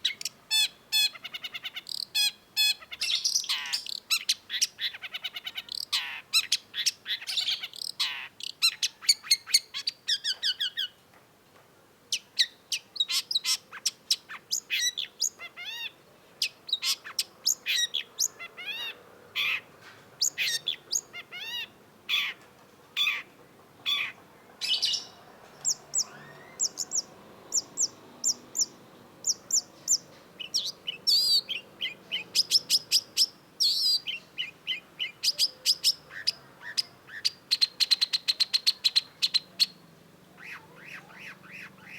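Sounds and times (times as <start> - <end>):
bird singing chirps: 0.0 - 11.0, 20.2 - 22.4, 23.9 - 41.9.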